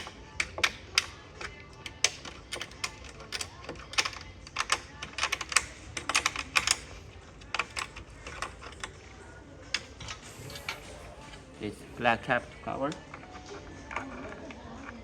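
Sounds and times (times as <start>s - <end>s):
plastic caps clicking: 0.0s - 9.0s.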